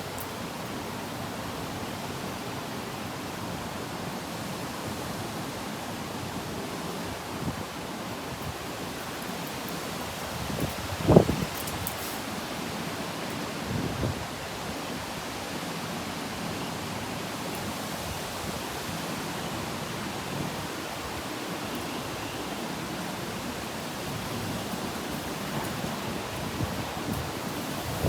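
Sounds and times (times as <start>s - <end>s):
wind: 0.0s - 28.0s
heavy rain: 18.6s - 28.0s.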